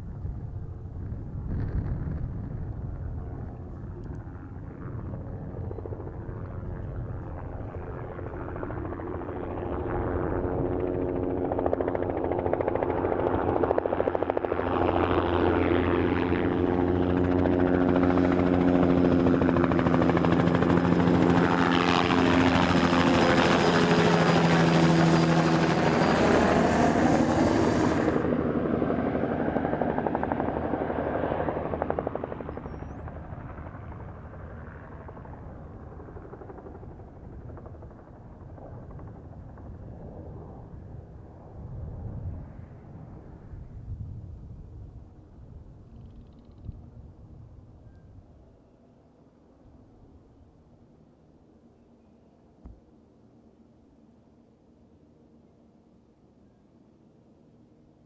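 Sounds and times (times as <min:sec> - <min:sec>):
helicopter rotor beating: 0:01.5 - 0:40.6.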